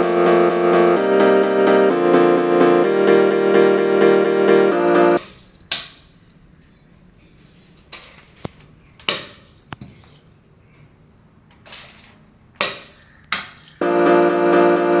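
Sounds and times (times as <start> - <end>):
rustling or scraping: 5.2 - 11.0.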